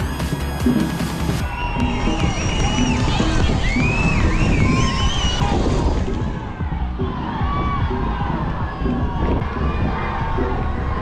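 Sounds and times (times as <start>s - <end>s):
crowd cheering and shouting: 0.0s - 11.0s.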